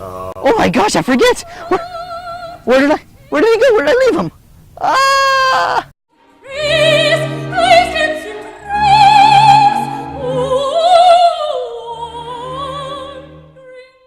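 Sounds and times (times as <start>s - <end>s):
operatic singing: 6.2s - 14.0s.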